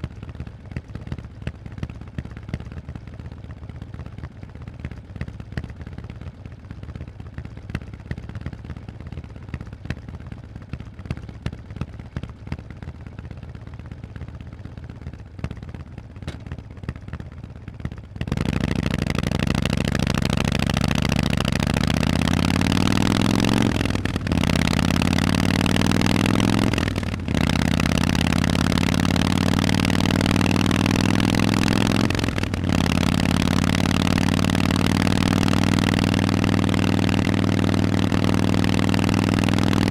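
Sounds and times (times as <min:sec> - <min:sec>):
motorcycle engine revving: 0:18.3 - 0:39.9.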